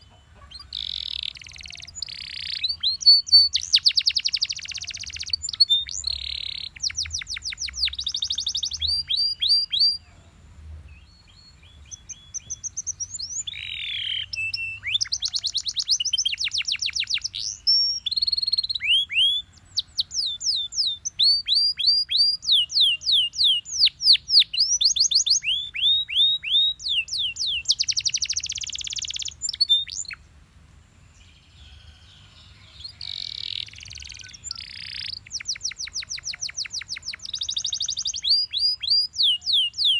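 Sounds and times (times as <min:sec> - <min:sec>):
canary singing trills: 0:00.0 - 0:30.2, 0:31.1 - 0:39.9.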